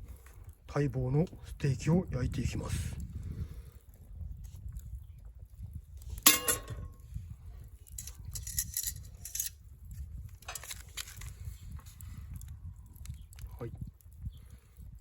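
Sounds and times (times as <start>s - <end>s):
metallic clank of cookware: 6.3s - 7.0s.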